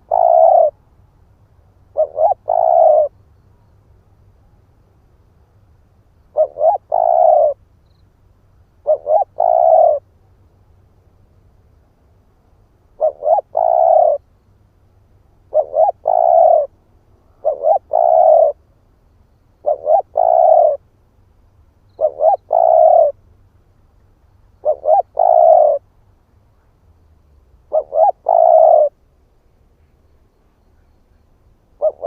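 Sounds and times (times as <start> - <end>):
dove cooing: 0.0 - 0.8, 1.9 - 3.1, 6.3 - 7.6, 8.8 - 10.1, 13.0 - 14.2, 15.5 - 16.7, 17.3 - 18.6, 19.6 - 20.8, 22.0 - 23.2, 24.6 - 25.8, 27.7 - 29.0, 31.8 - 32.0.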